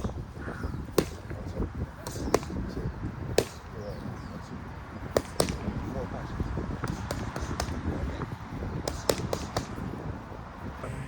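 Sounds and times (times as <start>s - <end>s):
wind rumble on microphone: 0.0s - 11.0s
sharp smacks: 0.9s - 1.4s, 2.0s - 2.6s, 3.3s - 3.7s, 5.1s - 5.8s, 6.8s - 7.9s, 8.8s - 9.8s.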